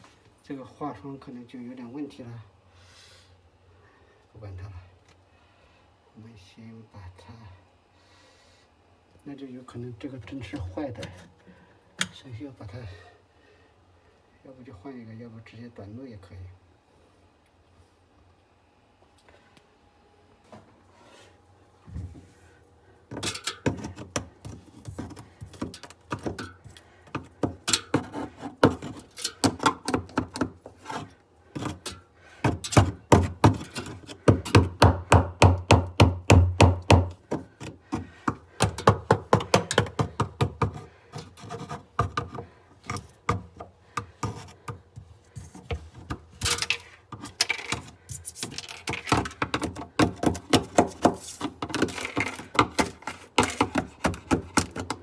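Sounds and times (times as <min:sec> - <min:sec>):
tool knocking and scraping ice: 0:23.1 - 0:55.0.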